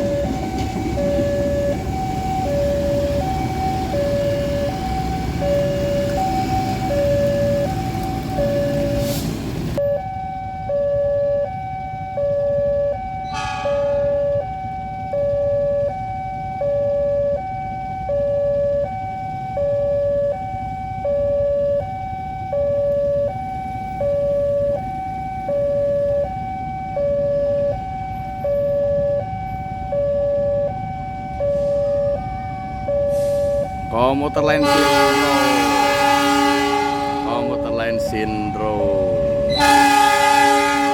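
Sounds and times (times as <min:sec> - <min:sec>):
low engine and traffic rumble: 0:00.0 - 0:40.9
two-tone electronic warning alarm: 0:00.0 - 0:40.9
brief sharp high sound: 0:13.3 - 0:14.8.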